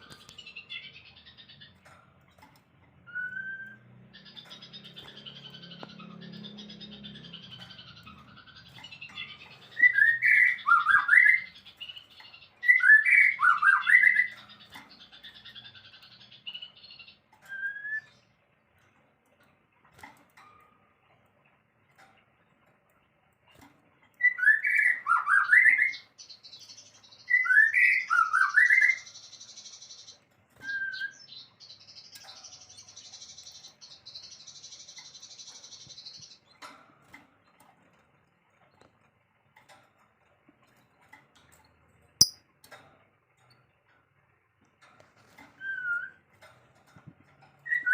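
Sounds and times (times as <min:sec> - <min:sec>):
songbird chirping: 0:00.0 - 0:18.6, 0:19.8 - 0:36.8.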